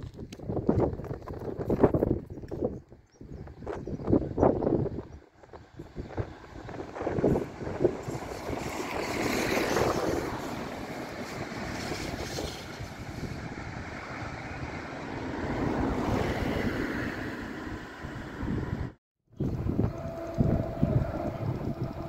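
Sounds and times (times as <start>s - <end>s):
wind noise on microphone: 0.0s - 22.0s
electric train rolling past: 5.5s - 22.0s.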